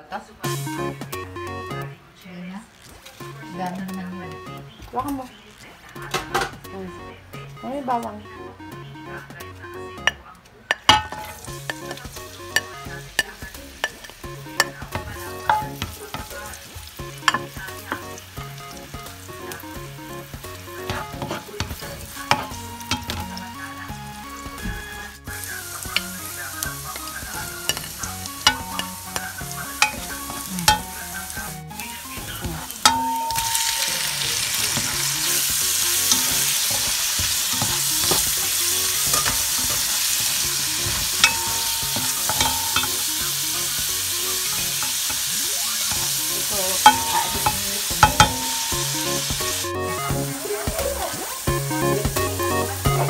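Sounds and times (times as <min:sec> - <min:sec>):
food sizzling in hot oil: 0:00.4 - 0:01.9, 0:02.6 - 0:06.7, 0:10.7 - 0:53.0
utensil clicking and scraping pot: 0:20.7 - 0:23.5, 0:25.7 - 0:49.6.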